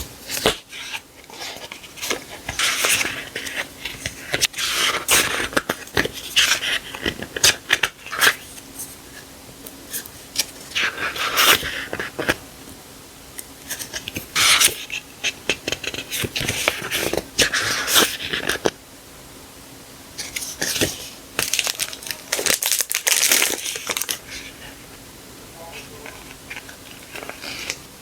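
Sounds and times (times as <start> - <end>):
packaging crinkling and rustling: 20.2 - 24.8, 25.8 - 28.0.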